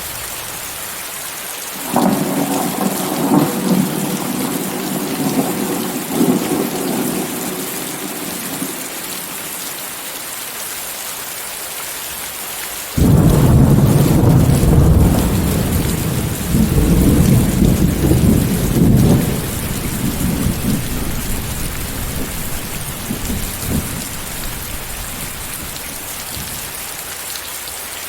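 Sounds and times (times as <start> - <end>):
steady rain: 0.0 - 28.0
thunder rumbling: 1.8 - 9.6, 13.0 - 26.8.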